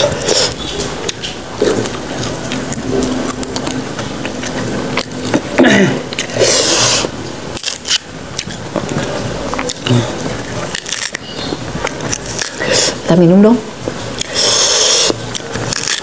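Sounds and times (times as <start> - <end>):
chewing and mouth clicks: 0.0 - 13.1
banana skin tearing: 6.1 - 8.6, 9.6 - 13.0, 14.2 - 16.0.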